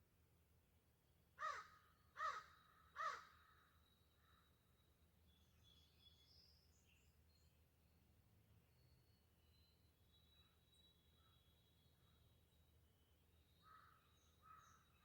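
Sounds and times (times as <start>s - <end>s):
crow cawing: 1.4s - 3.5s.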